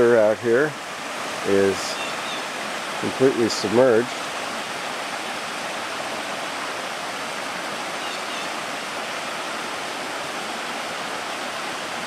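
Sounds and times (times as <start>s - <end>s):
waterfall and stream rushing: 0.0s - 12.0s.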